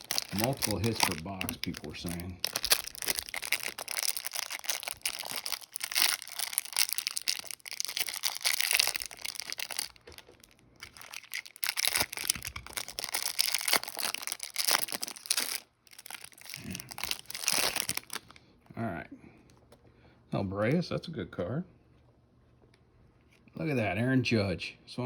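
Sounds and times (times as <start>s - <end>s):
wrapper rustling and crinkling: 0.0s - 18.4s.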